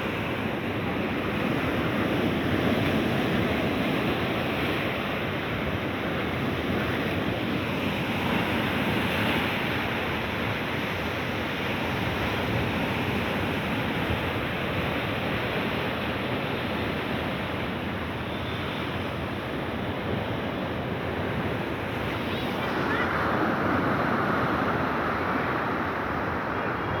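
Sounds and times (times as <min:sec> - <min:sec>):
waves washing ashore: 0:00.0 - 0:27.0
wind on microphone: 0:19.2 - 0:27.0.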